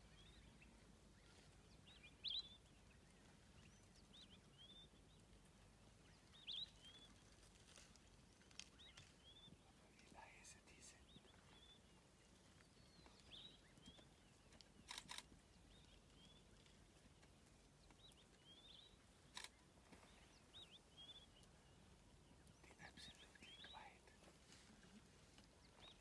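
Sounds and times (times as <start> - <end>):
sharp clicks: 14.8 - 15.3
high bird chirps: 22.6 - 24.0.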